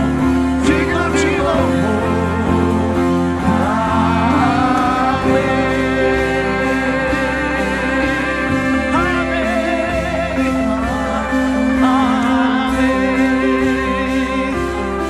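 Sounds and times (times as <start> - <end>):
voices singing: 0.0 - 15.0
worship band playing chords: 0.0 - 15.0.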